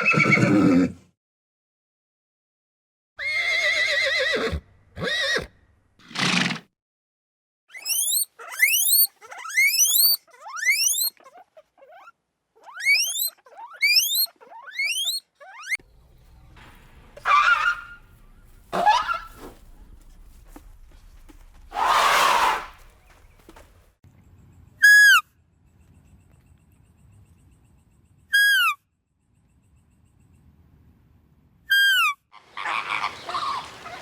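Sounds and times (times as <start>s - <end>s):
horse neighing: 0.0s - 1.0s, 3.2s - 6.6s, 18.7s - 19.4s, 21.7s - 23.1s
quick rising squeaks: 7.7s - 15.8s.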